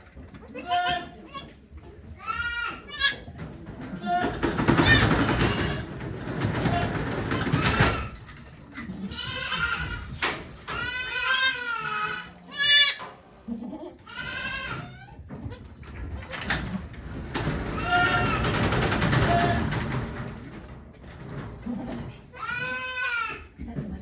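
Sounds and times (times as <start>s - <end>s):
goats bleating: 0.4s - 1.6s, 2.2s - 3.3s, 8.9s - 10.1s, 10.7s - 15.1s, 17.7s - 18.5s, 21.7s - 23.5s.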